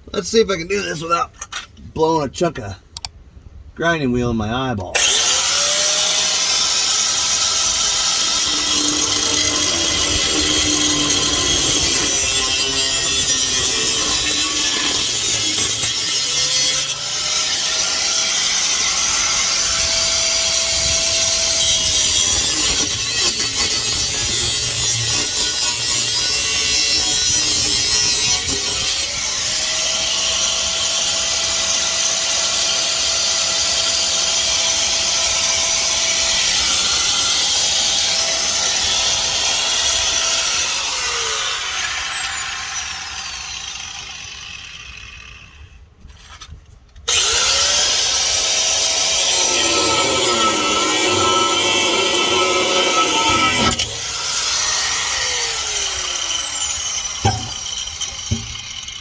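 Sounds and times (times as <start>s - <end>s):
grinder cutting metal pipe: 5.0s - 45.7s, 47.1s - 59.0s
grinder motor whine: 5.0s - 45.7s, 47.1s - 59.0s.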